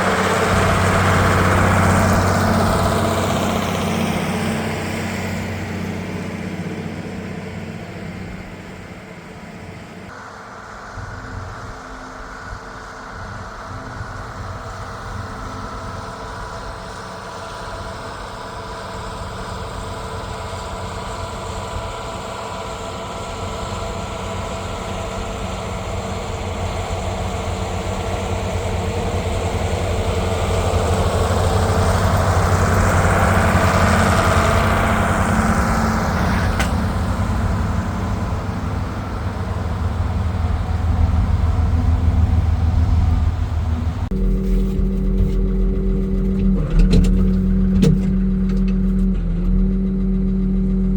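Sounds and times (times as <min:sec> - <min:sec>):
tractor diesel engine running: 0:00.0 - 0:10.1, 0:12.8 - 0:50.9.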